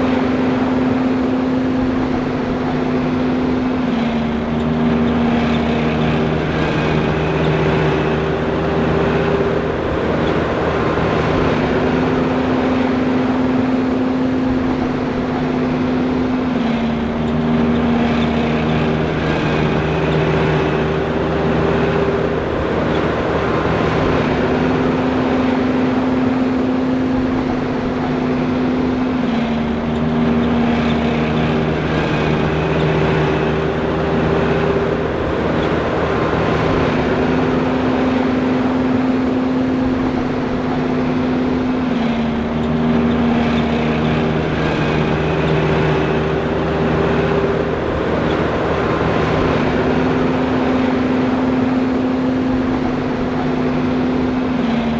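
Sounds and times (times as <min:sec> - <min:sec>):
forage harvester running: 0:00.0 - 0:54.9.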